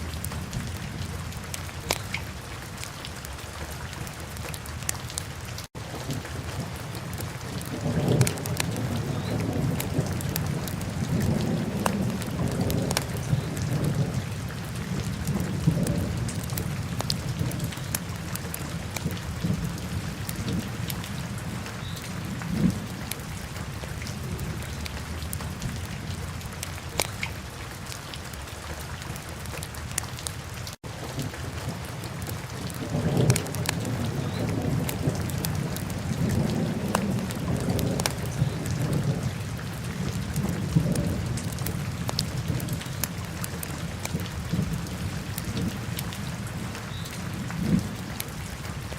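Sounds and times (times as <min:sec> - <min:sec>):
fire crackles and pops: 0:01.5 - 0:03.1, 0:07.0 - 0:21.1, 0:24.8 - 0:28.2, 0:32.0 - 0:39.2, 0:40.2 - 0:46.1.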